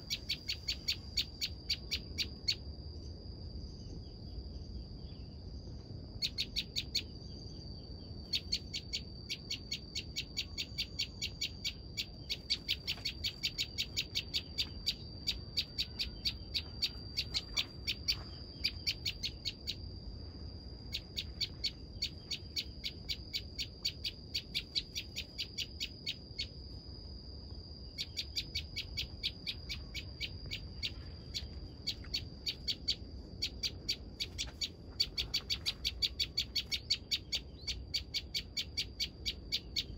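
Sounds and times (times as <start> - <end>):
steady high whine: 0.0 - 38.0
bird calling with sharp chips: 8.3 - 19.8, 28.0 - 39.9.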